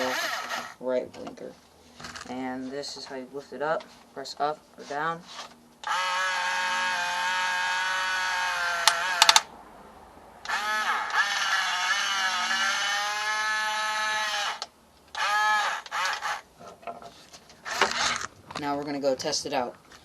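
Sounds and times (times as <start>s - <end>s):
electric gear motor whining: 0.0s - 0.8s
sharp clicks: 8.8s - 9.5s.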